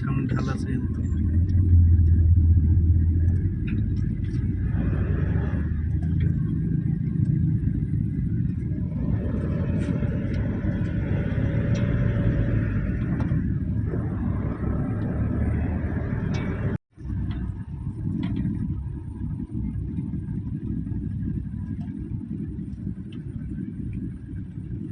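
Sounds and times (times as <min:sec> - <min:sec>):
engine and tyre rumble: 0:00.0 - 0:24.9.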